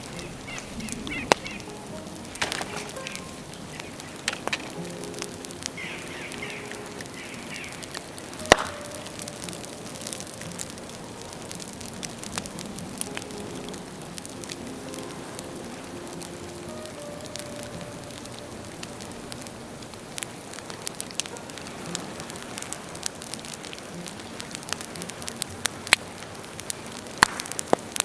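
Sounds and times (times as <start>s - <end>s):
burning bamboo crackling and popping: 0.0s - 28.0s.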